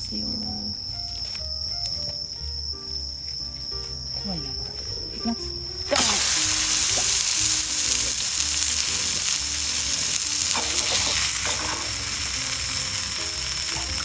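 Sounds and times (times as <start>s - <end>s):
meat sizzling in a pan: 5.9s - 14.0s.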